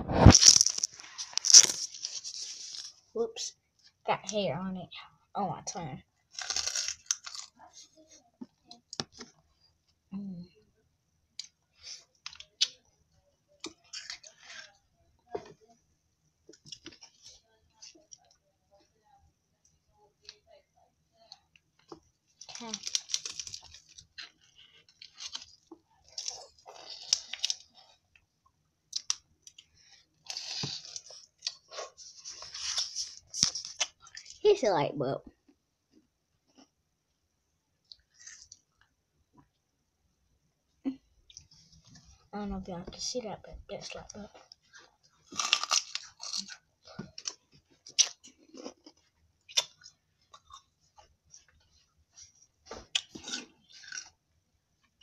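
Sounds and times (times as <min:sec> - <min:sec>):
crunching frozen ice pop: 0:06.3 - 0:07.6, 0:22.4 - 0:27.7, 0:30.2 - 0:31.7, 0:45.2 - 0:50.6.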